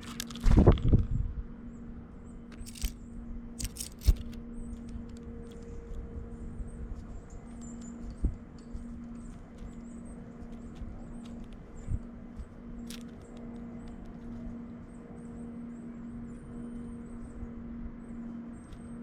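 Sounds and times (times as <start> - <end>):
steady low hum: 0.0 - 19.0
small birds chirping: 1.6 - 19.0.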